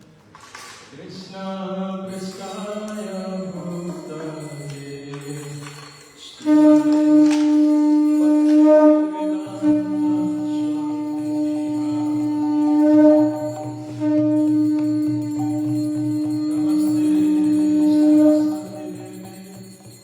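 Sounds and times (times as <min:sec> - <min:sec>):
person chanting: 0:00.9 - 0:20.0
conch shell blown: 0:05.2 - 0:20.0.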